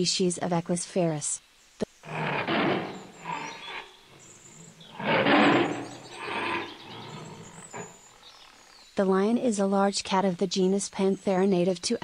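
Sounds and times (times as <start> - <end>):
lion roaring: 2.0 - 8.2.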